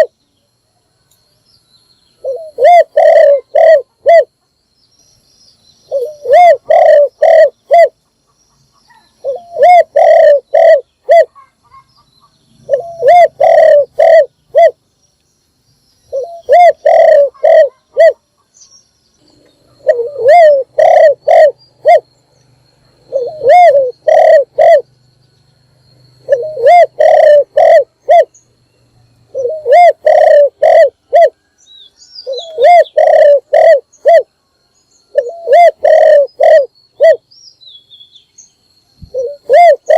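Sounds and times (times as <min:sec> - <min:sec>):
small birds chirping: 0:00.0 - 0:39.9
dove cooing: 0:02.2 - 0:04.3, 0:05.9 - 0:08.0, 0:08.9 - 0:11.9, 0:12.6 - 0:14.8, 0:16.1 - 0:18.4, 0:19.6 - 0:22.1, 0:23.0 - 0:24.9, 0:26.2 - 0:28.4, 0:29.3 - 0:31.5, 0:32.2 - 0:34.3, 0:35.1 - 0:37.2, 0:39.0 - 0:39.9.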